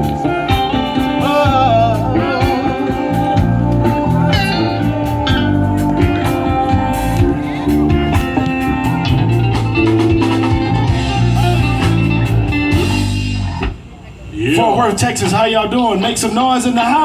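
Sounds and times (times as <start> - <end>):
bass line: 0.0 - 13.9
electric guitar: 0.0 - 14.0
drums: 0.0 - 14.4.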